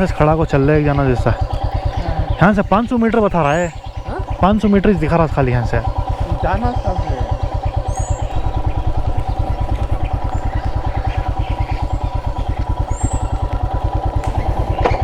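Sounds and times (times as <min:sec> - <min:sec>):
bird chirping: 0:00.0 - 0:15.0
motorcycle engine idling: 0:00.0 - 0:15.0.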